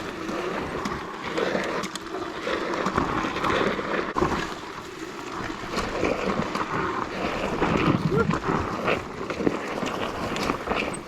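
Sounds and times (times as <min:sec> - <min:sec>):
wind noise on microphone: 0:05.4 - 0:11.0.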